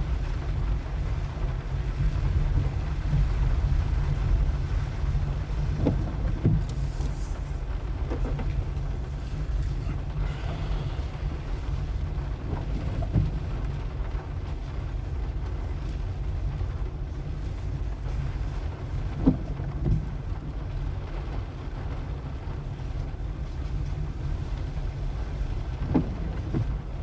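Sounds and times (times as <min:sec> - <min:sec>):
car driving on wet street: 0:00.0 - 0:27.0
car thumping over bumps: 0:02.2 - 0:15.4, 0:18.9 - 0:21.3, 0:25.6 - 0:27.0.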